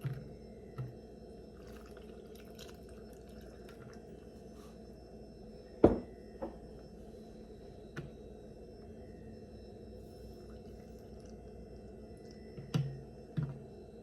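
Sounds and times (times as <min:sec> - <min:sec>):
steady background hum: 0:00.0 - 0:14.0
jar knocking on counter: 0:05.8 - 0:06.6.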